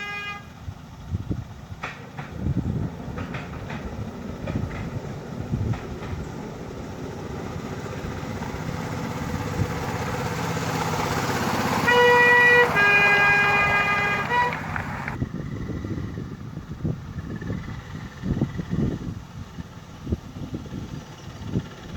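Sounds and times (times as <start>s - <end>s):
locomotive horn: 0.0s - 0.6s, 11.2s - 15.2s.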